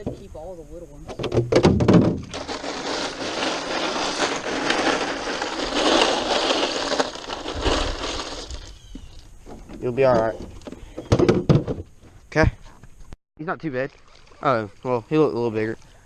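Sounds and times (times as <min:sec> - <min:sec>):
crackling and crunching handling noise: 0:01.3 - 0:10.8.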